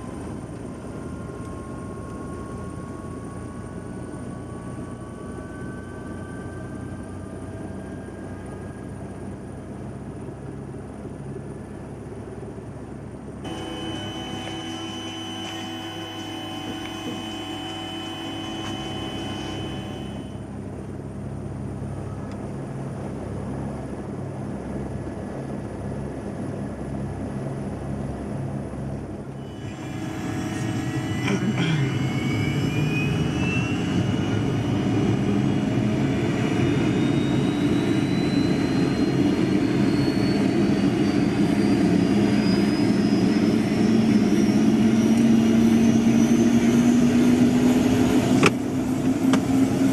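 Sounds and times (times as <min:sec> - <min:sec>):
rising turbine whine: 0:00.0 - 0:49.9
helicopter turbine starting: 0:13.5 - 0:20.5, 0:29.4 - 0:49.9.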